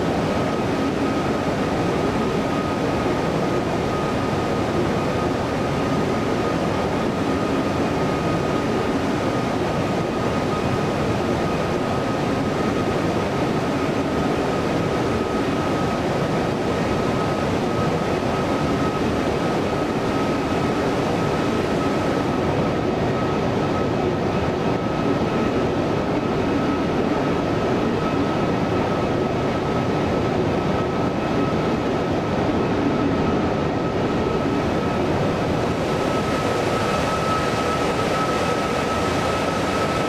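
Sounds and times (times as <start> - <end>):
jet engines rumbling: 0.0 - 40.0
thin steady whine: 0.0 - 40.0.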